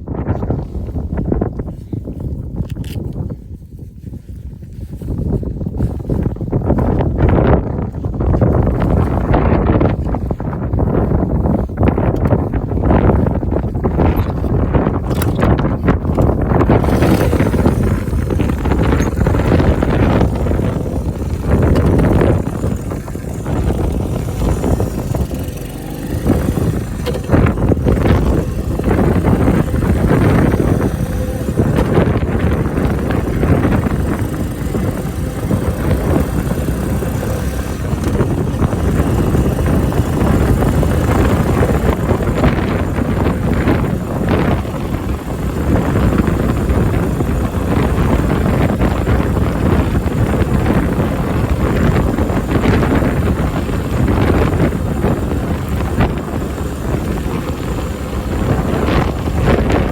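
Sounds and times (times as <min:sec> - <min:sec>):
wind buffeting microphone: 0:00.0 - 0:59.9
motorcycle engine running: 0:00.1 - 0:59.9.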